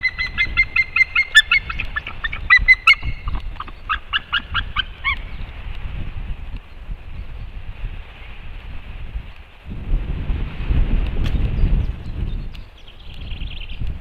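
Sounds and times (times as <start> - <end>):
eagle calling: 0.0 - 5.5.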